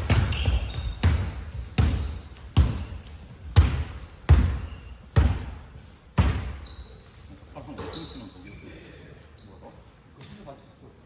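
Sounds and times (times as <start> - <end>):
basketball bouncing on court: 0.0 - 6.8
high squeaks: 0.2 - 8.6.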